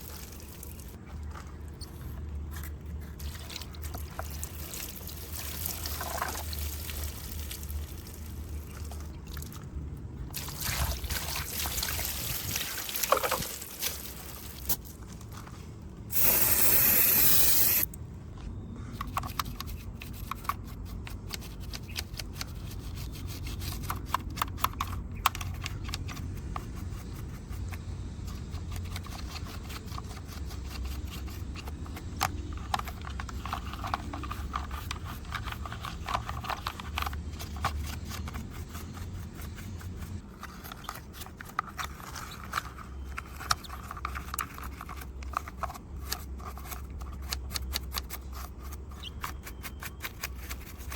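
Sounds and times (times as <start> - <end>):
loud hiss: 16.1 - 17.9.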